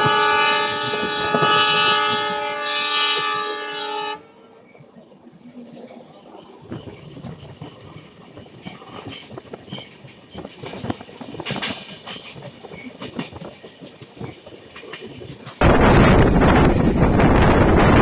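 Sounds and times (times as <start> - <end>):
train rumble: 0.0 - 18.0
wheels clattering over rail joints: 6.3 - 18.0.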